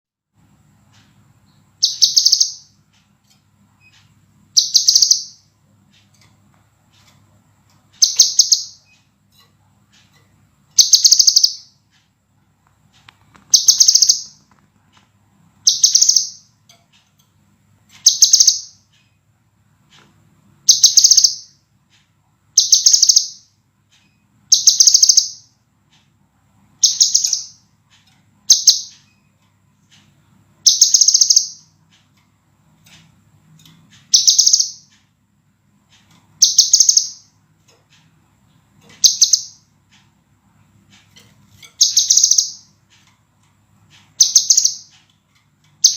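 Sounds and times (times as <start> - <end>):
bird singing high trills: 1.8 - 2.8, 10.8 - 11.8, 34.1 - 34.9, 36.4 - 37.3, 39.0 - 39.6, 41.8 - 42.7, 44.2 - 44.9.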